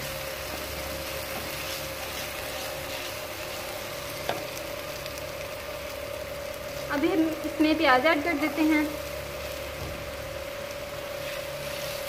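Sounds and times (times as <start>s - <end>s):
paste sizzling in oil: 0.0s - 12.0s
steady hum: 0.0s - 12.0s
wooden spatula stirring: 0.5s - 5.2s.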